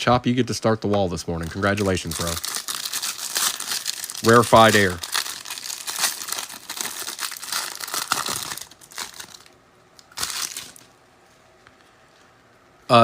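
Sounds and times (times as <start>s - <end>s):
foil wrappers crinkling and tearing: 1.4s - 10.9s.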